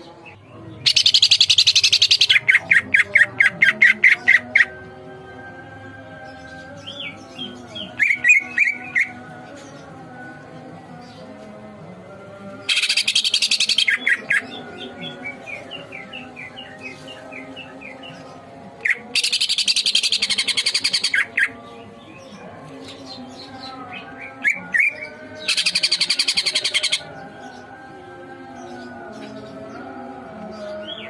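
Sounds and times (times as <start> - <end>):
harsh rattling bird phrases: 0.0 - 4.7, 12.7 - 18.2, 18.8 - 27.6
bird chirping: 0.0 - 4.8, 6.1 - 31.0.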